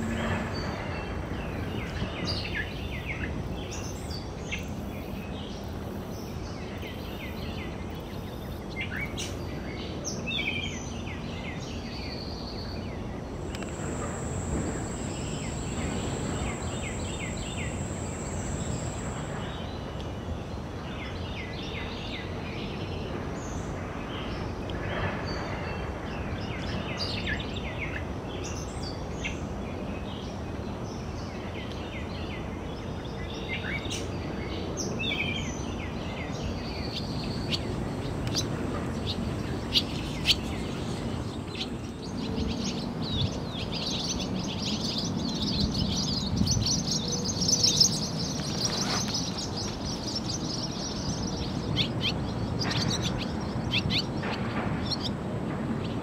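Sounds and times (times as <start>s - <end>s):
birds chirping and calling: 36.8s - 55.2s.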